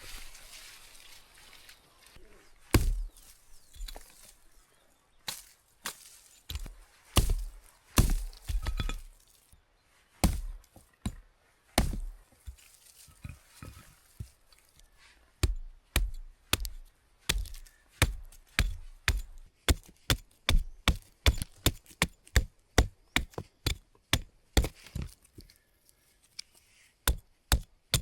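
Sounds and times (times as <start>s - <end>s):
axe strikes chopping wood: 2.7s - 3.2s, 5.3s - 9.1s, 10.2s - 11.2s, 11.8s - 12.7s, 15.4s - 25.1s, 27.1s - 28.0s
wood cracking: 6.5s - 9.3s, 15.4s - 25.4s.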